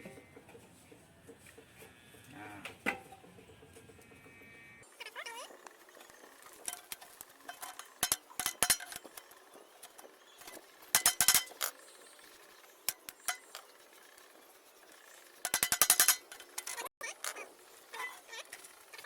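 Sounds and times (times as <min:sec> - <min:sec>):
hammer striking nail through tin: 0:11.0 - 0:11.6, 0:15.5 - 0:16.4.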